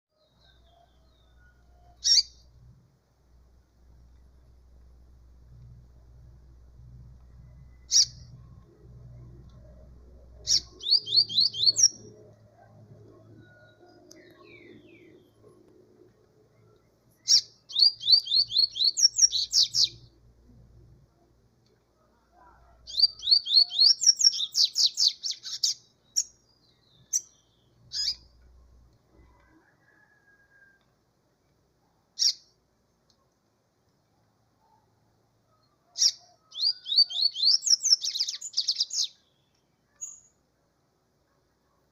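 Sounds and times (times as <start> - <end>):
seedeater bird singing: 2.0 - 2.5, 7.6 - 12.3, 16.8 - 20.2, 22.8 - 28.3, 36.0 - 40.3.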